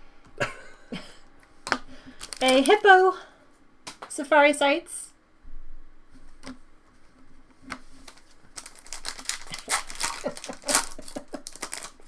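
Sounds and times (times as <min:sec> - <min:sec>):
card pack wrapper crinkling: 0:02.1 - 0:03.2, 0:08.0 - 0:12.0.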